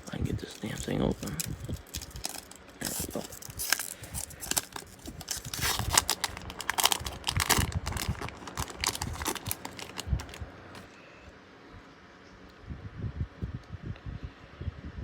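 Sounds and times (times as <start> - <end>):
cards being handled: 0.0 - 10.9
wrapper crinkling: 0.0 - 10.9.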